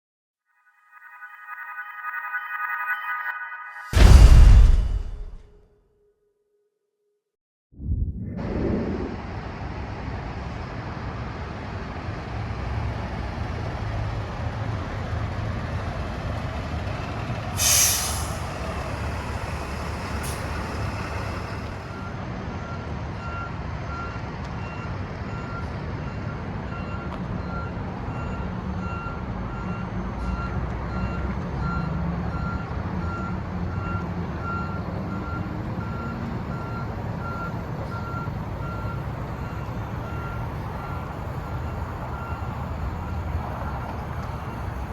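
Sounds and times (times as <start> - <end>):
back-up alarm beeping: 0.6 - 5.4
diesel truck engine running: 9.2 - 22.6
air brakes hissing: 17.6 - 21.8.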